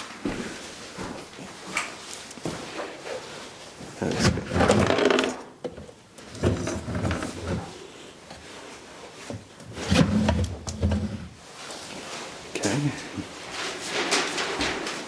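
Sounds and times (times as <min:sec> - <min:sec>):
objects clattering and knocking: 0:03.8 - 0:07.8, 0:13.4 - 0:15.0.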